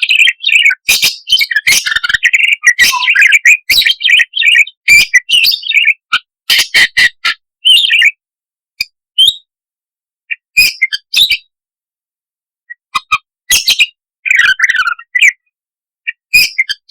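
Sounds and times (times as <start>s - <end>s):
budgerigar chattering: 0.0s - 8.2s, 10.3s - 11.4s, 16.3s - 16.9s.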